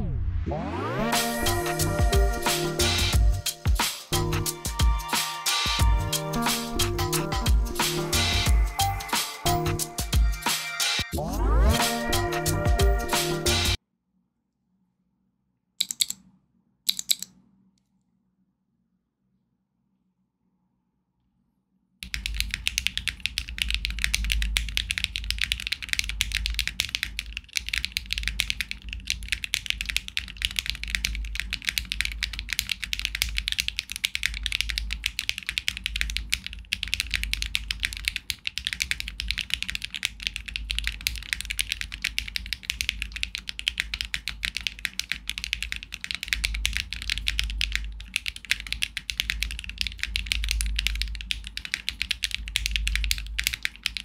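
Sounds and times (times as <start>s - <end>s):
fast mechanical keyboard typing: 15.8s - 16.2s, 16.9s - 17.3s, 22.0s - 54.0s.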